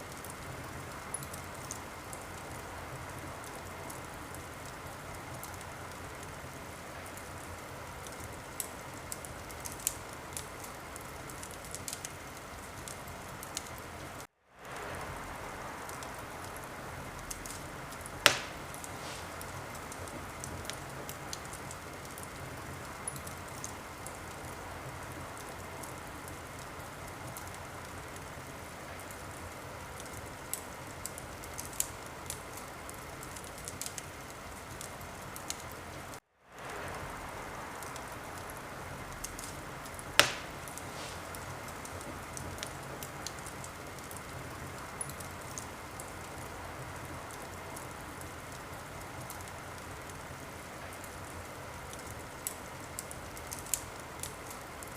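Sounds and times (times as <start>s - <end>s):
wood fire crackling: 0.0s - 54.9s
loud pop from fire: 18.2s - 20.2s, 39.3s - 42.7s.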